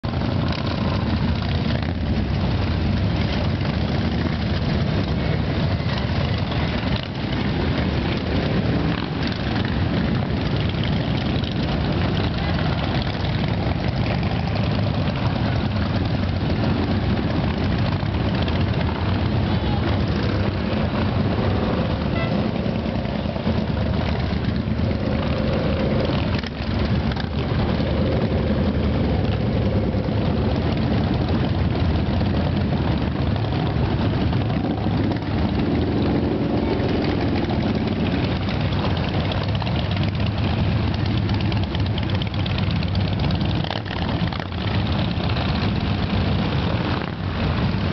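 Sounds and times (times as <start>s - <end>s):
motorcycle engines rumbling: 0.0s - 47.9s.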